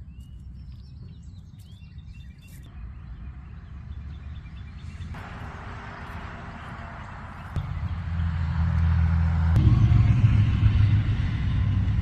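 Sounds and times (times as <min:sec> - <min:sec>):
small birds chirping: 0:00.0 - 0:05.3, 0:06.0 - 0:08.1
low rumble: 0:05.1 - 0:12.0.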